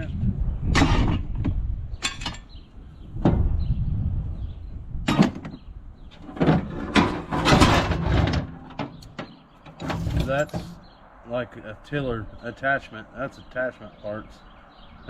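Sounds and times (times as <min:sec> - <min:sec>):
metal parts clunking and scraping: 0:00.8 - 0:02.5, 0:05.1 - 0:10.9.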